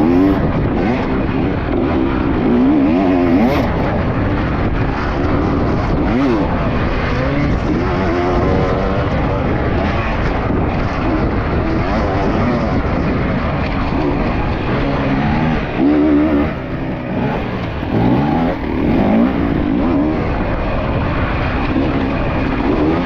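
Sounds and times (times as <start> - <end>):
dirt bike engine revving: 0.0 - 23.0
steady rushing noise: 0.0 - 23.0.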